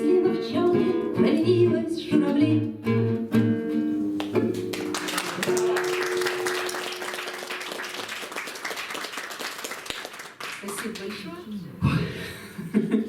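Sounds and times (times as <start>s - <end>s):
acoustic guitar chord ringing: 3.8s - 7.7s
small audience clapping: 4.1s - 11.6s.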